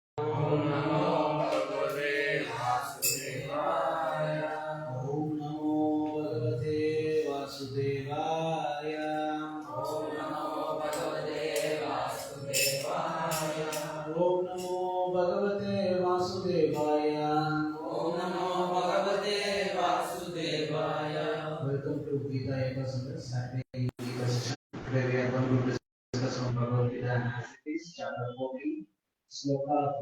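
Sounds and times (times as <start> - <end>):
person chanting in held notes: 0.2 - 21.9.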